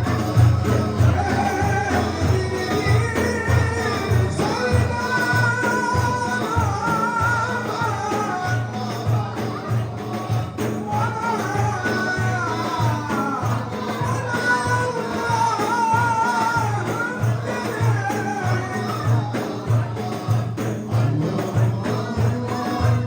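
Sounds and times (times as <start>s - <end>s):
hand drum with jingles: 0.0s - 23.0s
person singing a hymn: 0.0s - 23.0s.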